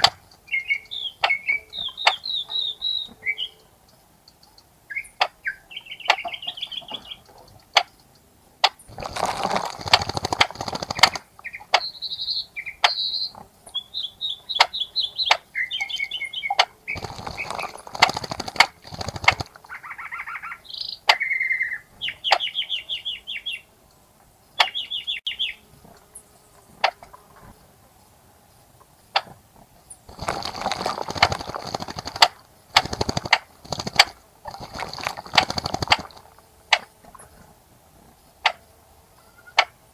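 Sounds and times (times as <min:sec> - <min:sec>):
wings fluttering and splashing water: 0:00.0 - 0:00.5, 0:08.9 - 0:11.9, 0:15.7 - 0:20.7, 0:30.1 - 0:37.3
bird chirps and trills: 0:00.0 - 0:23.8, 0:24.4 - 0:27.2
sharp ticks: 0:07.0 - 0:11.9, 0:16.6 - 0:20.0, 0:30.1 - 0:36.9.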